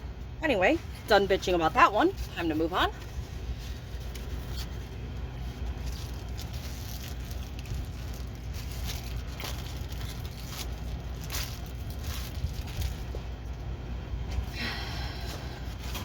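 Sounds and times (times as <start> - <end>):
steady low hum: 0.0 - 16.0
plastic packaging crinkling: 2.1 - 13.7.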